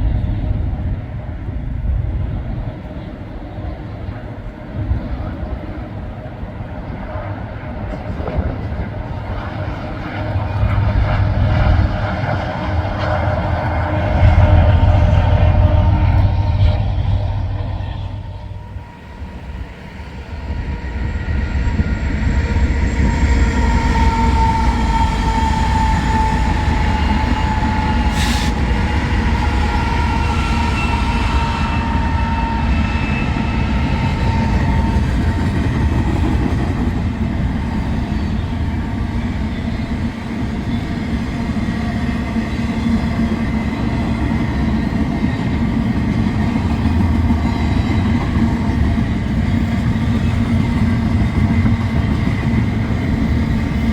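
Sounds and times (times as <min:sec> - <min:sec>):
train wheels rumbling on rail: 0:00.0 - 0:53.9
high-pitched whining tones: 0:10.3 - 0:36.3.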